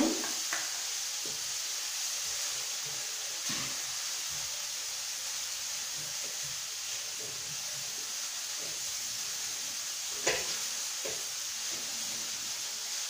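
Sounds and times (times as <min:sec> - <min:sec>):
chicken sizzling in a pan: 0:00.0 - 0:13.0.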